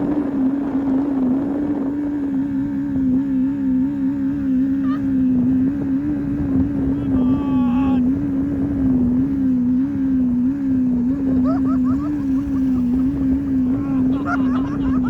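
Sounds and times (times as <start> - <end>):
misfiring boat engine drone: 0.0 - 15.0.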